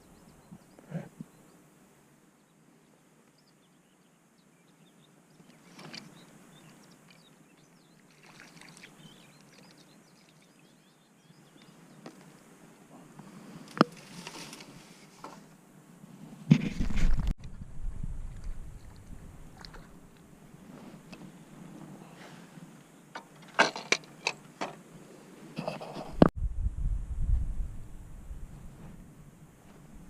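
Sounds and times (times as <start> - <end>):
faint birds chirping: 0.0 - 13.7, 18.7 - 25.3
soft rustling: 18.8 - 22.8.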